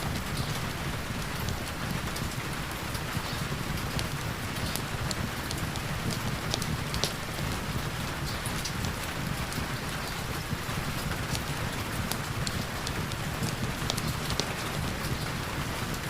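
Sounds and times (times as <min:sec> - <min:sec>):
heavy rain: 0:00.0 - 0:16.0
sharp ticks: 0:03.9 - 0:07.6.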